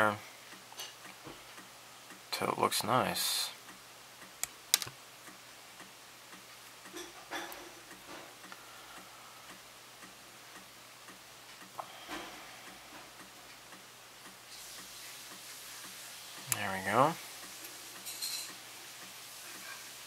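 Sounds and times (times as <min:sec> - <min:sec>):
light ticking: 0:03.5 - 0:07.0, 0:07.8 - 0:11.8, 0:12.6 - 0:19.2.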